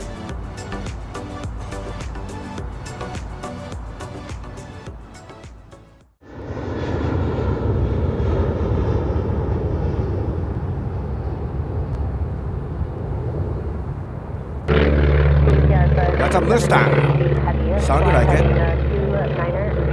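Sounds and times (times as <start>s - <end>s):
music: 0.0s - 6.2s, 14.7s - 19.9s
jet engines roaring: 6.2s - 19.9s.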